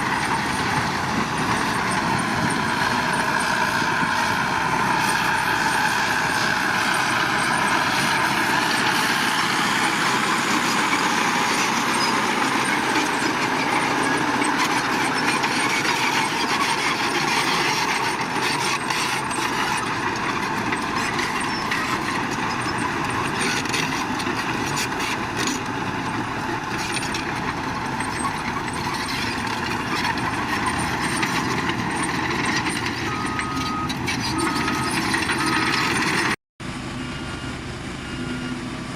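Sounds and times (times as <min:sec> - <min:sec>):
construction machinery engine running: 0:00.0 - 0:38.9
reversing alarm beeps: 0:33.0 - 0:35.7.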